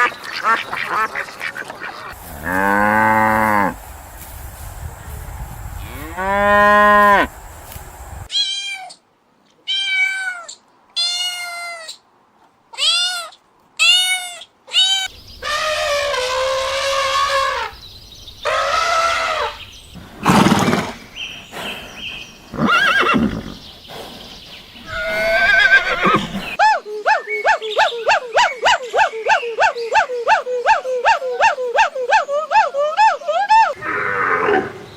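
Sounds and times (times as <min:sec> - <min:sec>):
farm animals calling: 0:00.0 - 0:04.3, 0:05.7 - 0:07.4, 0:18.4 - 0:21.0, 0:24.8 - 0:26.6.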